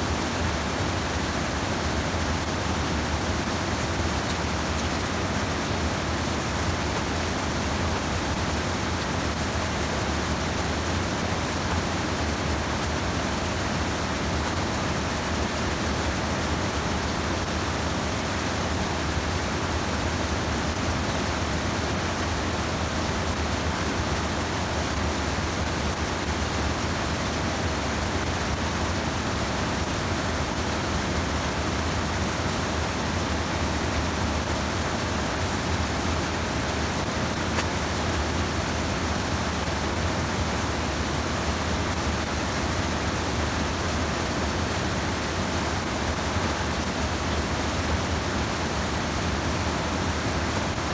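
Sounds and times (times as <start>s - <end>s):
stream water rushing over weir: 0.0s - 50.9s.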